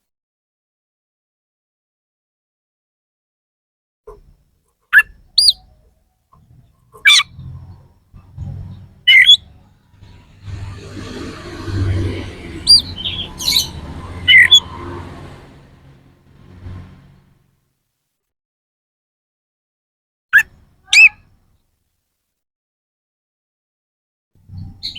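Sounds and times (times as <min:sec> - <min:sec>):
low hum: 0:07.2 - 0:17.5.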